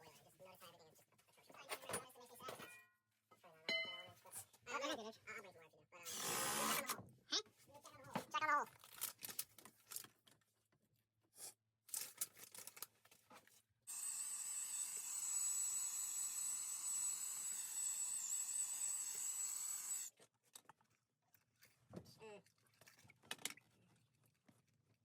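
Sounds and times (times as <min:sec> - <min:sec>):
small electric motor whining: 0:06.1 - 0:06.9, 0:13.9 - 0:20.2.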